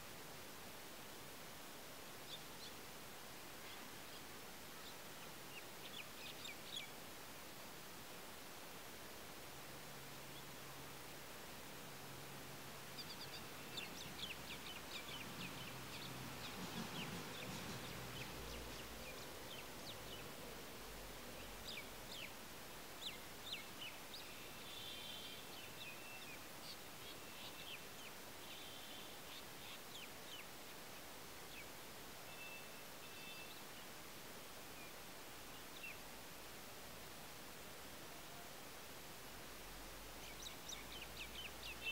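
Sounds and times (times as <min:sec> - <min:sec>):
steady hiss: 0:00.0 - 0:41.9
faint bird chirps: 0:03.5 - 0:07.1, 0:12.8 - 0:34.0, 0:40.0 - 0:41.9.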